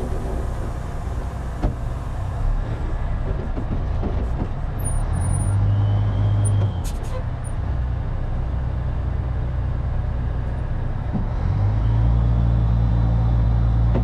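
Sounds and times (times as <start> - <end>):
loud low hum: 0.0 - 3.1
vehicle engine rumbling: 0.0 - 14.0.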